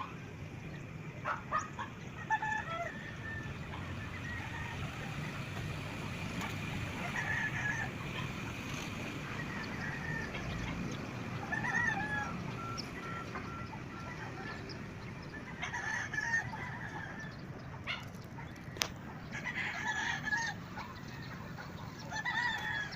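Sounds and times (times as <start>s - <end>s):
fowl calling: 6.4s - 18.1s.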